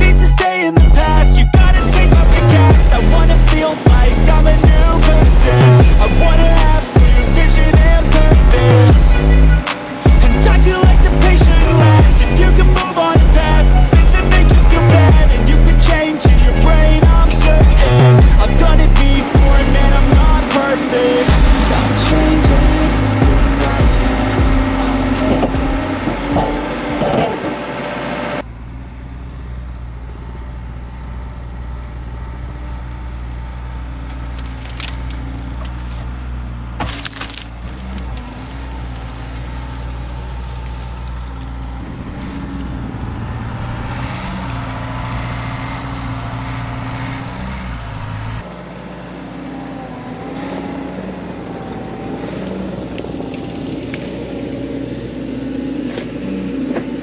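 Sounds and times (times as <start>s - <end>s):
diesel engine running: 0.0s - 57.0s
sharp cracks: 34.1s - 36.1s, 36.8s - 41.6s.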